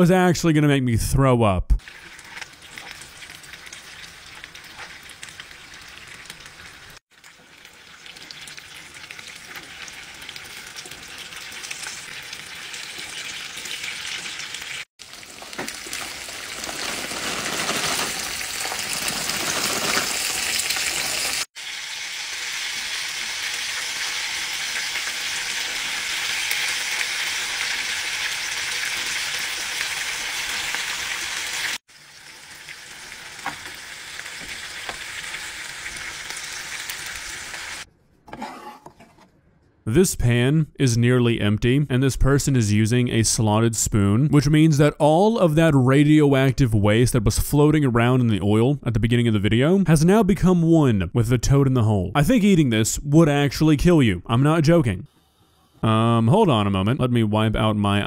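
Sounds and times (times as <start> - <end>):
food sizzling in a pan: 1.8 - 37.9.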